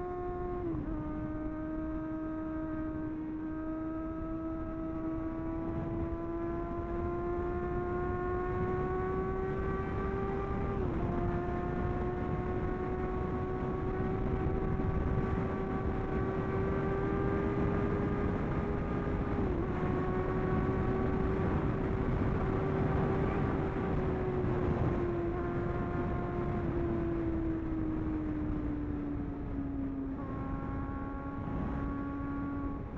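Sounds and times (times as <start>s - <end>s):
motorcycle engine accelerating: 0.0s - 32.9s
wind rushing over microphone: 0.0s - 32.9s.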